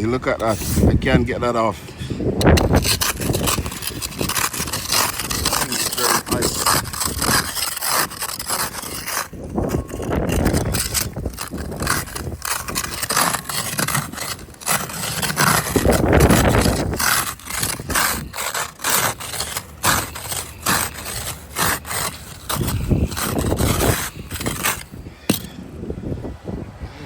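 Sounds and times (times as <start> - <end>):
ice being scraped off car: 0.0 - 25.7.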